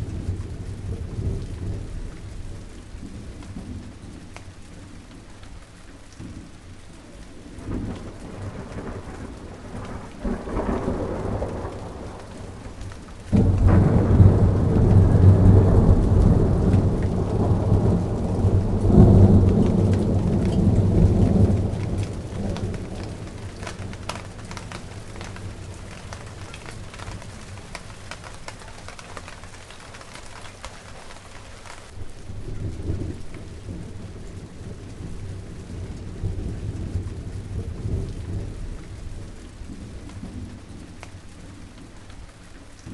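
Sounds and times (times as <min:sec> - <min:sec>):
steady rain: 0:00.0 - 0:42.9
thunder rumbling: 0:00.0 - 0:42.9.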